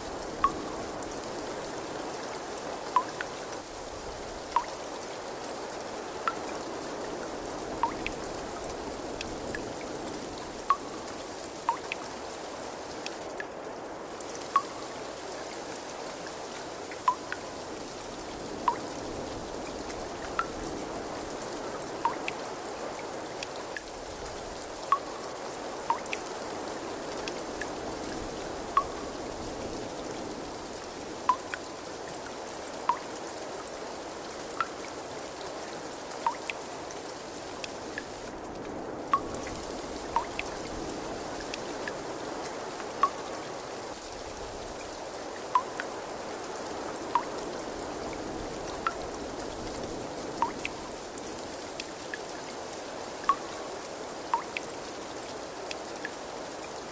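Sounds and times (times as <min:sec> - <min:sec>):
water trickling: 0:00.0 - 0:13.5, 0:14.2 - 0:52.4, 0:53.1 - 0:56.8
water drops plinking: 0:00.4 - 0:00.8, 0:03.0 - 0:03.3, 0:07.8 - 0:08.2, 0:10.7 - 0:10.9, 0:11.7 - 0:12.0, 0:14.6 - 0:14.8, 0:17.1 - 0:17.4, 0:18.7 - 0:18.9, 0:22.0 - 0:22.4, 0:24.9 - 0:25.2, 0:25.9 - 0:26.2, 0:28.7 - 0:29.0, 0:31.3 - 0:31.6, 0:32.9 - 0:33.1, 0:36.2 - 0:36.6, 0:40.1 - 0:40.5, 0:43.0 - 0:43.3, 0:45.6 - 0:45.9, 0:47.1 - 0:47.4, 0:50.4 - 0:50.8, 0:54.3 - 0:54.6.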